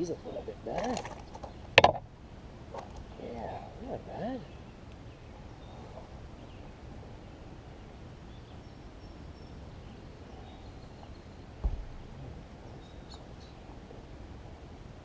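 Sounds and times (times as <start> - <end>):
faint bird chirps: 3.0 - 13.7
dull thump: 11.6 - 12.0.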